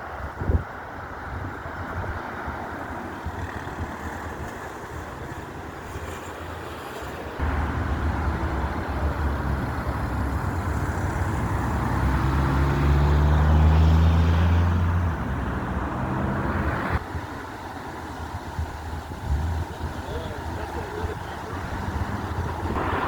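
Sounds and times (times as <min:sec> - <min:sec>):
road noise: 0:00.0 - 0:23.0
car engine accelerating: 0:07.4 - 0:17.0, 0:18.8 - 0:23.0.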